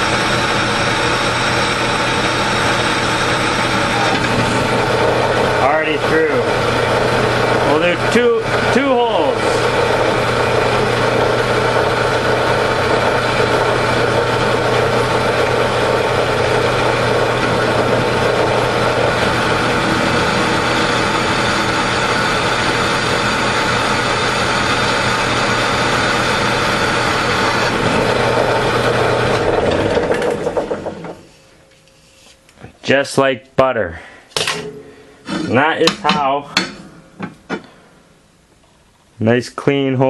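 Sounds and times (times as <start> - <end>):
drill press motor humming: 0.0 - 31.8.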